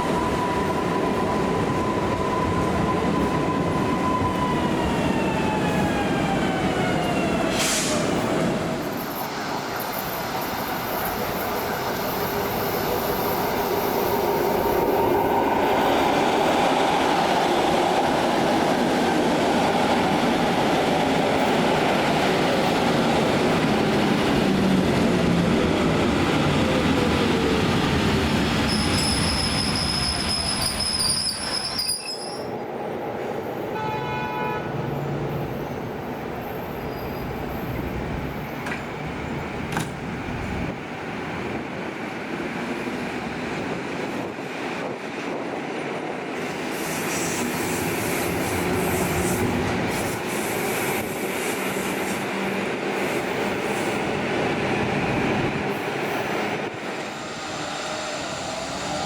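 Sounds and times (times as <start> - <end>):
train running past: 0.0 - 59.0
high-pitched wheel squeal: 28.7 - 32.5.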